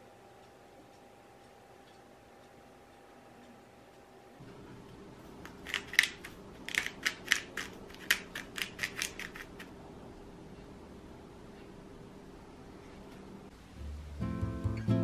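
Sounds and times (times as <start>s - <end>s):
pepper mill grinding: 5.5s - 9.7s.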